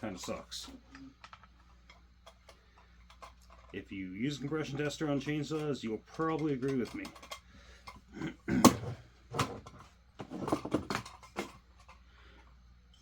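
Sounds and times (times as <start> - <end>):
tools knocking and clattering: 5.2 - 12.0.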